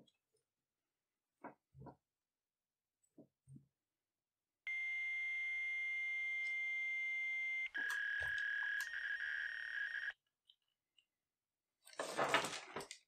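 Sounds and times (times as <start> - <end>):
steady electronic tone: 4.7 - 10.1.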